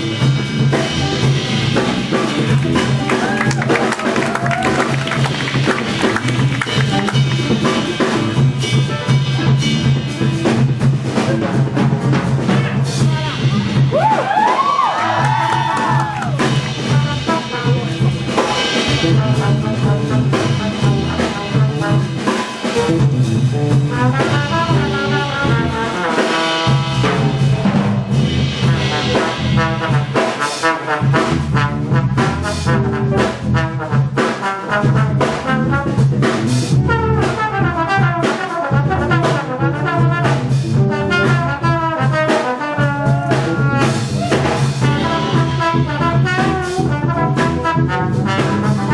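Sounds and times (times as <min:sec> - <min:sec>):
big-band jazz orchestra: 0:00.0 - 0:48.9
trombone and trumpet sections: 0:00.0 - 0:48.9.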